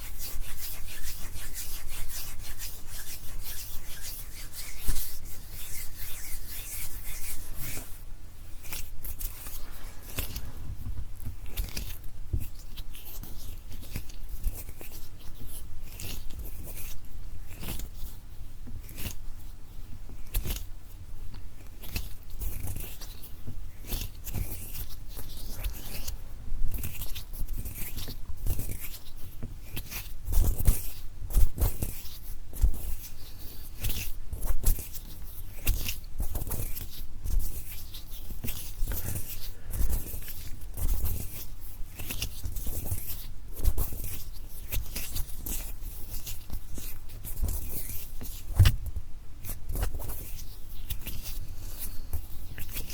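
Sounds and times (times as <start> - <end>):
skin rubbing on skin: 0.0 - 17.0.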